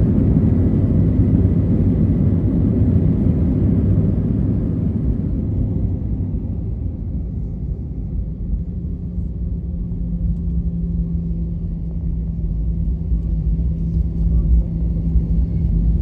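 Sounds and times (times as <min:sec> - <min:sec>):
aircraft cabin rumble: 0:00.0 - 0:16.0.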